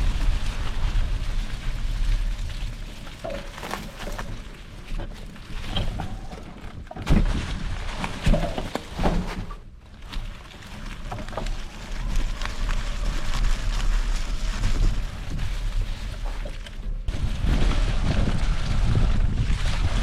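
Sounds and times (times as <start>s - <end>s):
bike clicks and crunches: 0.0s - 20.0s
wind buffeting microphone: 11.9s - 20.0s.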